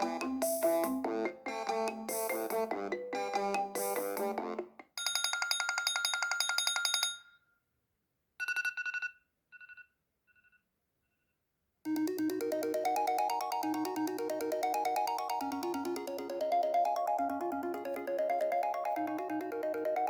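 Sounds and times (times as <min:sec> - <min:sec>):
melodic ringtone: 0:00.0 - 0:04.6, 0:11.9 - 0:20.0
pulsing electronic trill: 0:11.9 - 0:20.0.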